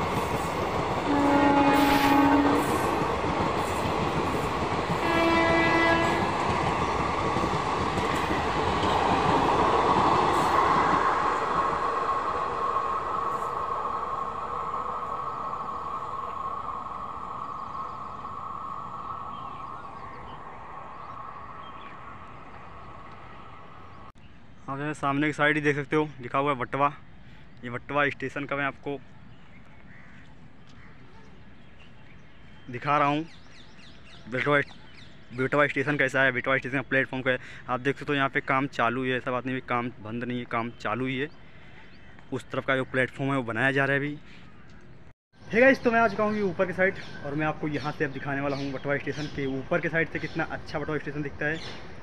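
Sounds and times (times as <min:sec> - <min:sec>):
train coaches rumbling: 0:00.0 - 0:24.1, 0:45.4 - 0:52.0
train horn blasts: 0:01.1 - 0:02.8, 0:05.0 - 0:06.3.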